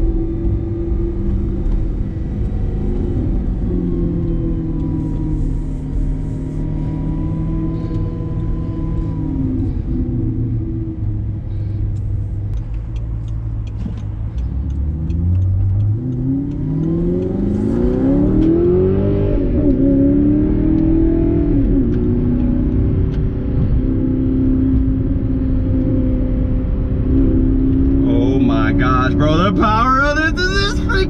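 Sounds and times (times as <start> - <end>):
car engine revving: 0.0 - 25.1, 25.8 - 31.0.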